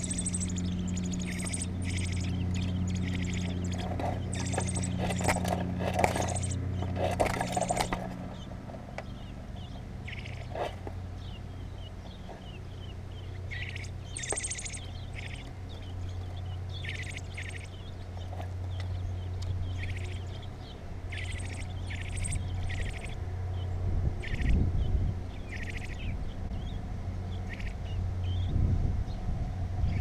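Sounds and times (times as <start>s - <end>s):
baby birds chirping: 0.0s - 24.6s, 25.3s - 26.7s, 27.4s - 28.5s
low rumble: 0.0s - 30.0s
steady low hum: 0.0s - 30.0s.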